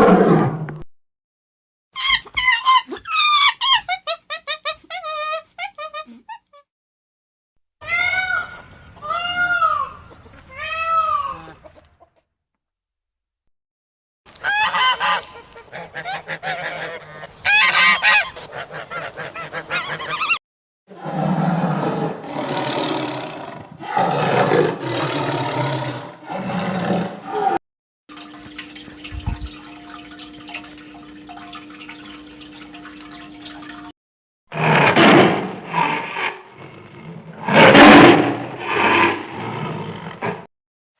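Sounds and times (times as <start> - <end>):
geese honking: 14.4 - 20.4.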